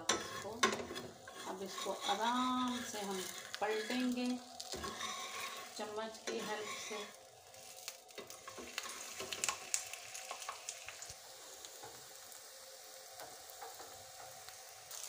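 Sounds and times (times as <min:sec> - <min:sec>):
metal spatula scraping pan: 0:00.0 - 0:07.3
pancake sizzling in oil: 0:00.0 - 0:15.0.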